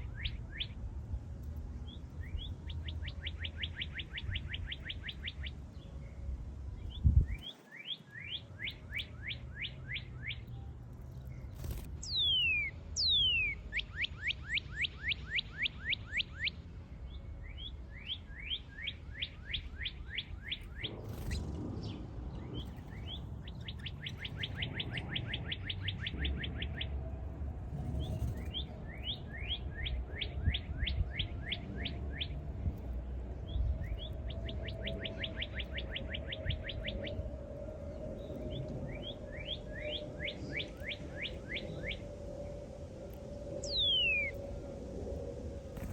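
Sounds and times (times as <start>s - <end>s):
small birds chirping: 0.0s - 45.9s
falling bird whistles: 11.6s - 16.5s, 43.6s - 44.4s
low rumble: 20.2s - 45.9s.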